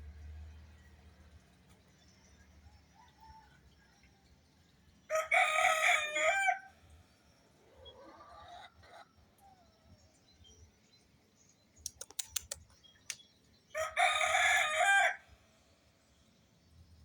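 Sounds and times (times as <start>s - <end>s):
rooster crowing: 5.1s - 6.8s, 13.7s - 15.3s
sharp clicks: 11.8s - 13.2s.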